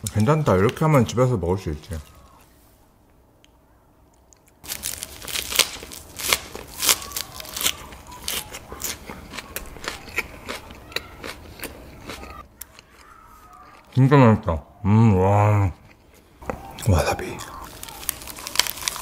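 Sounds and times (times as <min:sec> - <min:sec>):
crunching and chewing fried pork: 0:04.4 - 0:14.2, 0:15.7 - 0:19.0.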